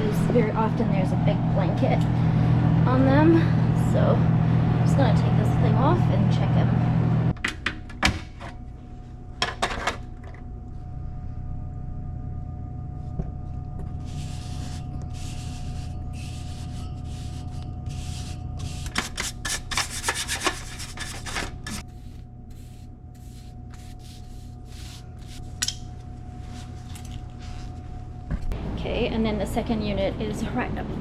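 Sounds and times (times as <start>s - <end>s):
steady hum with faint whine: 0.0s - 31.0s
cover scraping and rubbing: 18.0s - 21.8s.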